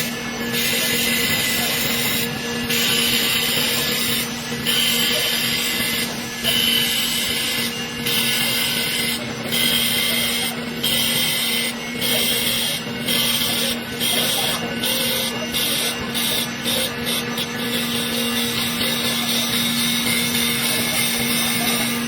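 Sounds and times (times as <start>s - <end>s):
chisel scraping spinning wood: 0.0s - 22.0s
wood lathe motor hum: 0.0s - 22.0s.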